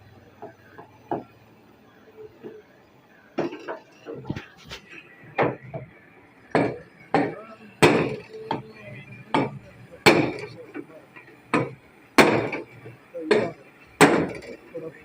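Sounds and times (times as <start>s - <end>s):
hammer striking sheet metal: 6.5s - 8.6s, 9.3s - 10.6s, 11.5s - 12.7s, 13.3s - 14.6s.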